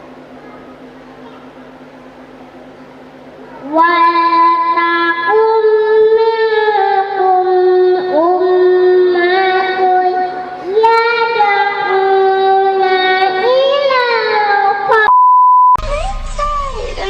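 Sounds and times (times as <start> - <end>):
girl chanting melodic recitation: 3.4 - 15.1, 15.8 - 17.0.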